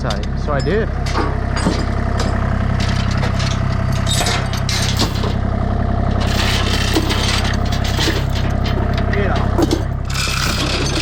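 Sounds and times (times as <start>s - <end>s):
engine idling: 0.0s - 11.0s
metallic clinks and scrapes: 6.2s - 11.0s.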